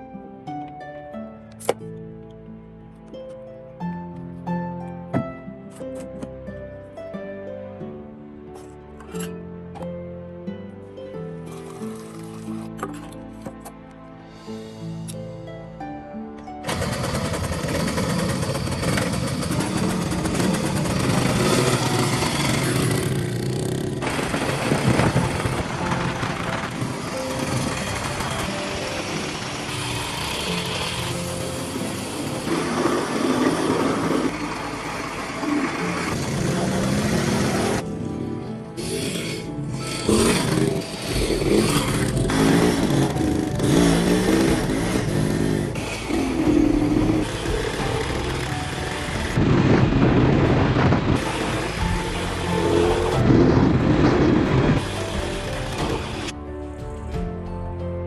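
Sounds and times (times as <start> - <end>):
motorcycle engine running: 16.7 - 37.9, 41.1 - 56.3.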